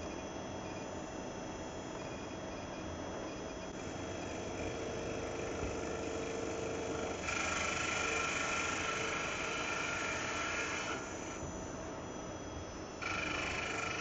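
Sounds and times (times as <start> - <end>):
high machine whine: 0.0 - 14.0
lathe machine running: 3.8 - 11.4, 13.0 - 14.0.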